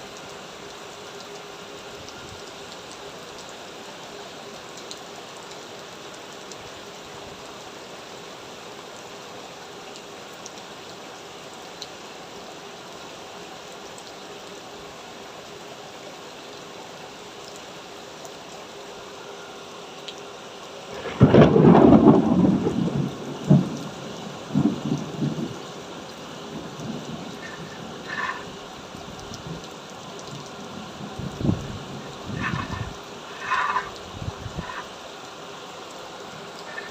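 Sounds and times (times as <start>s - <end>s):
heavy rain: 0.0s - 36.9s
thunder: 21.0s - 23.7s, 32.3s - 33.9s.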